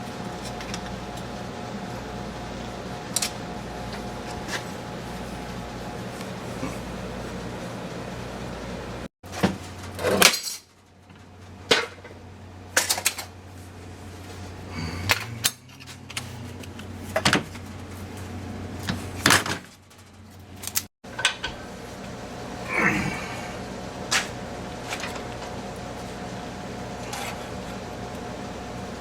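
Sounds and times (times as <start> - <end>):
steady low hum: 11.1 - 19.3, 19.9 - 29.0.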